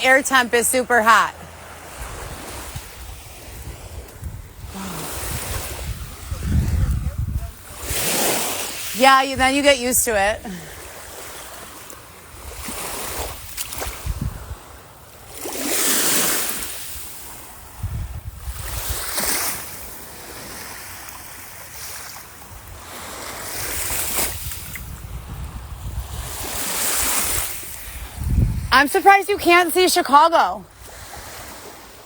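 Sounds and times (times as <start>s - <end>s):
small waves breaking on beach: 0.0s - 32.0s
wind rumble on microphone: 1.9s - 8.2s, 12.3s - 14.8s, 17.5s - 19.2s, 23.4s - 28.8s.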